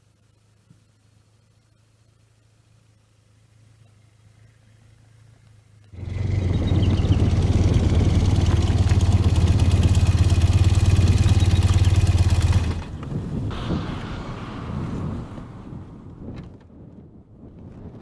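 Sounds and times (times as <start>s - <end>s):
motorcycle engine running: 6.0s - 13.8s
rushing sound: 6.0s - 16.4s.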